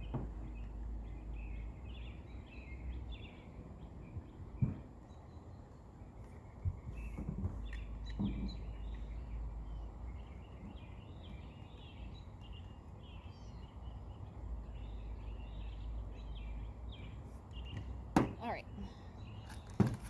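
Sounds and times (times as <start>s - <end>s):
small birds chirping: 0.0s - 20.0s
light knocks: 19.5s - 20.0s.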